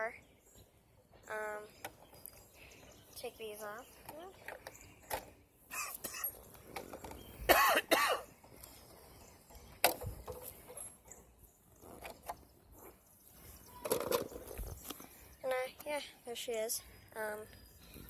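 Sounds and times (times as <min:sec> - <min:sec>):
person coughing: 0:05.7 - 0:06.3, 0:07.5 - 0:08.3.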